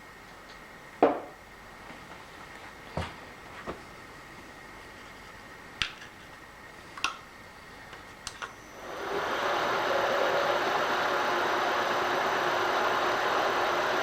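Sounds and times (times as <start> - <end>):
machine-tool motor humming and whining: 7.6 - 14.0.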